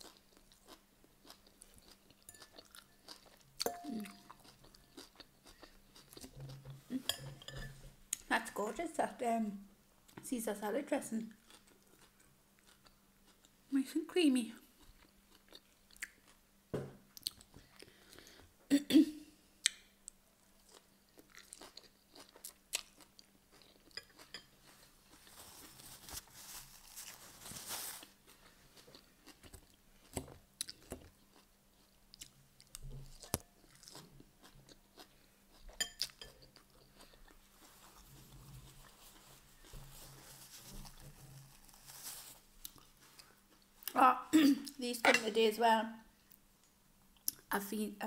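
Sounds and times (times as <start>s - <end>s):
chewing and crunching salad: 0.0s - 8.3s, 11.3s - 13.6s, 14.7s - 16.4s, 17.1s - 18.3s, 19.6s - 44.0s
paper tissue rustling: 25.2s - 28.2s, 37.7s - 43.2s.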